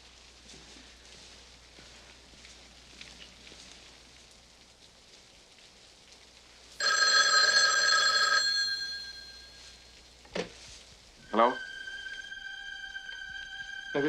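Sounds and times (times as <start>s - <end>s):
telephone bell ringing: 6.8s - 10.0s.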